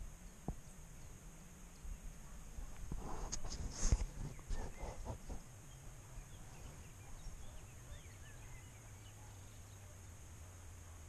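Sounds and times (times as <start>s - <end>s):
small birds chirping: 0.0s - 11.0s
rustling: 2.6s - 7.7s.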